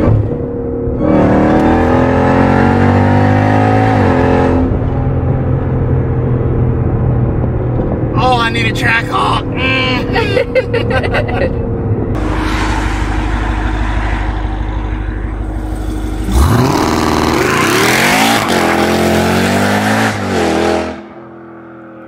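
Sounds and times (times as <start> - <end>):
car engine revving through gears: 0.0 - 5.8, 12.1 - 21.1.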